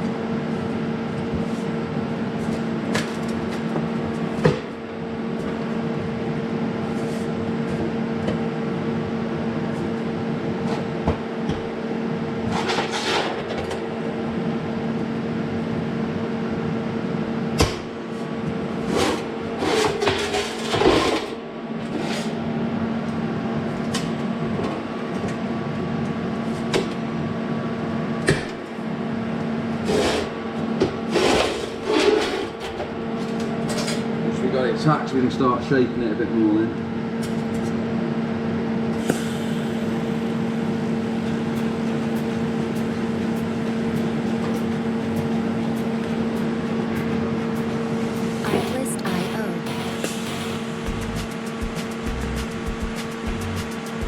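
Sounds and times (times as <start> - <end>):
welder electrical hum: 38.8 - 54.0.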